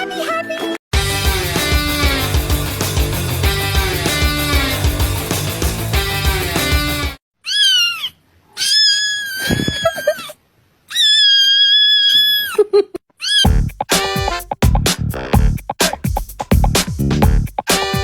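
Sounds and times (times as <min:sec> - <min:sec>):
rock music: 0:00.9 - 0:07.2, 0:13.5 - 0:16.0, 0:16.6 - 0:18.0
cat meowing: 0:13.2 - 0:13.5.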